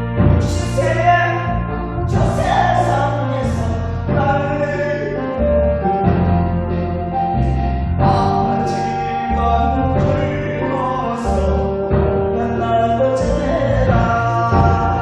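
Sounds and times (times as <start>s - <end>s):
person singing: 0.0s - 15.0s
recorded musical accompaniment: 0.0s - 15.0s.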